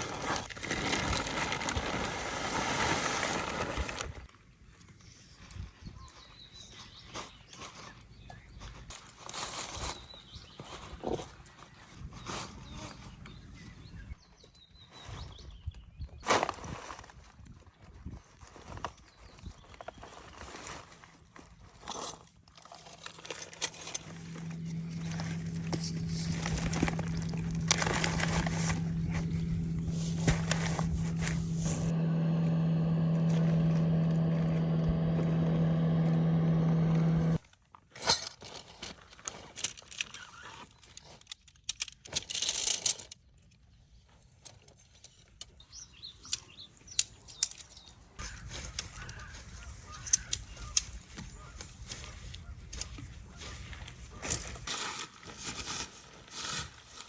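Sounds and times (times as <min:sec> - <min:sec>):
low motor hum: 0:23.8 - 0:37.4.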